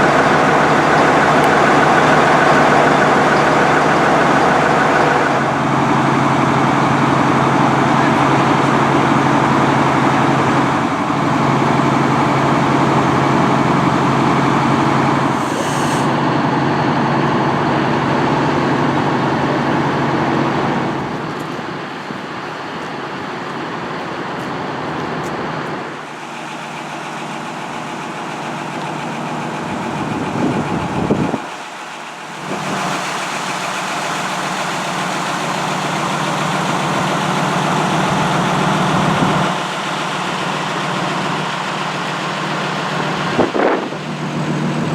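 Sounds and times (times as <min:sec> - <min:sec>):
fire engine running: 0:00.0 - 0:44.9.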